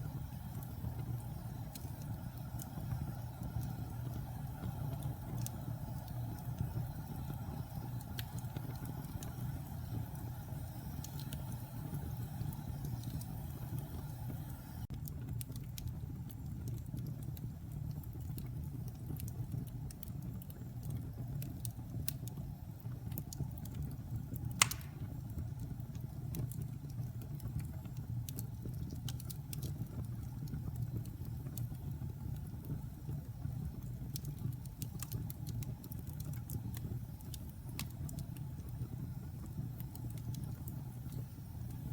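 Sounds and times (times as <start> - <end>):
fire crackling in fireplace: 0.0 - 41.9
logs popping: 24.5 - 25.3.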